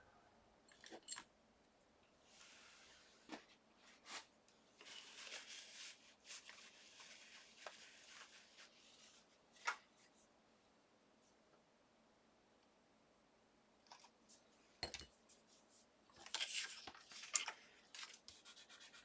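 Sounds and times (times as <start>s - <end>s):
paper rustling: 3.3s - 9.9s.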